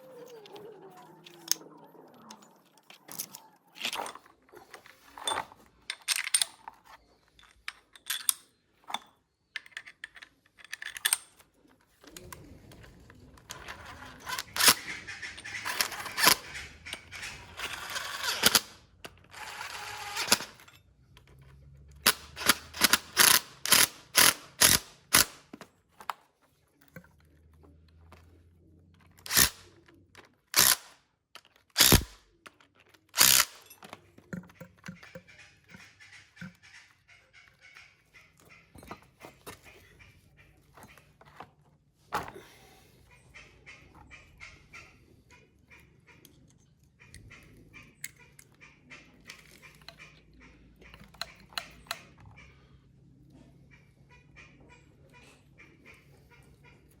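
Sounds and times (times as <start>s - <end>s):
hand tools clicking on metal: 5.2s - 11.4s, 13.5s - 25.6s, 29.0s - 36.6s.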